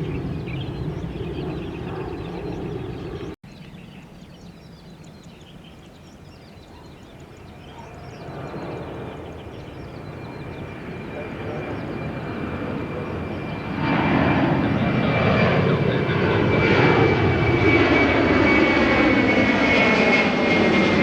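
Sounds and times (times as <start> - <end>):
jet engines rumbling: 0.0 - 3.4, 4.2 - 21.0
small birds chirping: 0.0 - 15.6.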